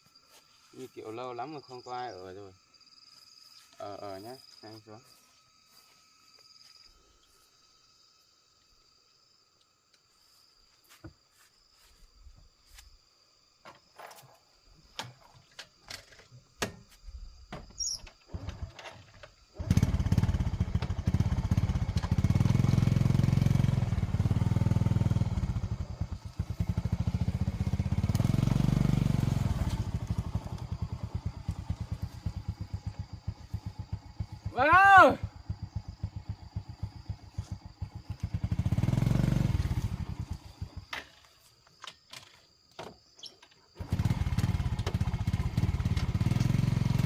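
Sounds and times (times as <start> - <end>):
motorcycle engine starting and running: 17.8 - 41.3, 43.8 - 47.0.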